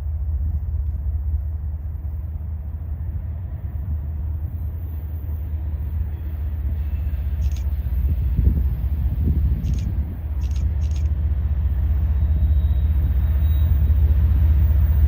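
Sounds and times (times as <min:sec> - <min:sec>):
freight train rumbling: 0:00.0 - 0:15.0.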